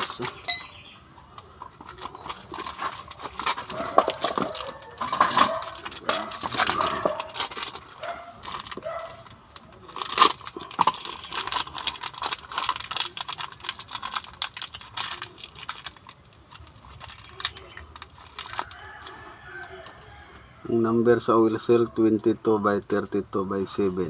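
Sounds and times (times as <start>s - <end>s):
metal tools clinking: 10.0s - 11.9s.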